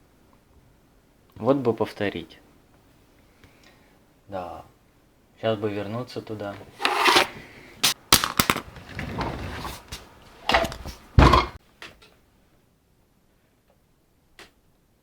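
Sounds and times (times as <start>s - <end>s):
heavy thump: 11.2s - 11.6s.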